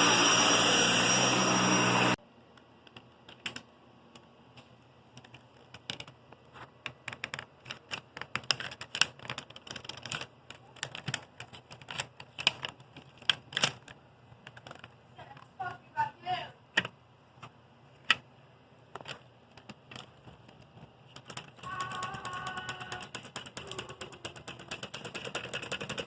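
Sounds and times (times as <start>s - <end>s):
vacuum cleaner running: 0.0s - 2.2s.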